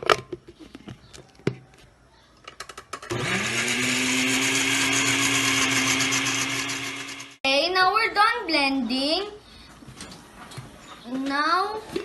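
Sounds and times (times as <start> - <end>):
electric blender motor running: 3.1 - 7.4.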